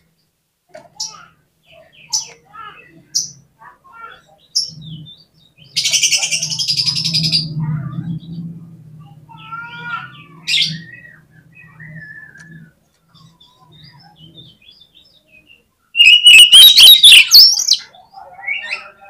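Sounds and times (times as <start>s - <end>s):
bird singing: 1.0s - 19.0s
harsh bird chattering: 5.6s - 7.5s, 16.0s - 19.0s
steady low hum: 6.6s - 14.0s.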